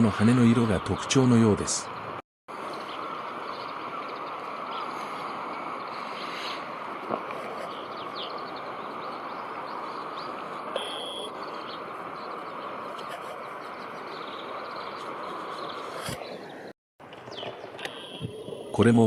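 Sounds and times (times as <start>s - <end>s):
high bird chirps: 7.8s - 12.4s.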